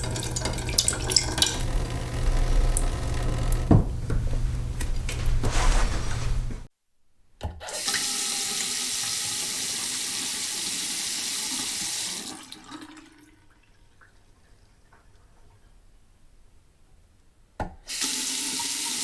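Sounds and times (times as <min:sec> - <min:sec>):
faucet running into basin: 0:00.0 - 0:04.8, 0:07.6 - 0:14.3, 0:17.9 - 0:19.0.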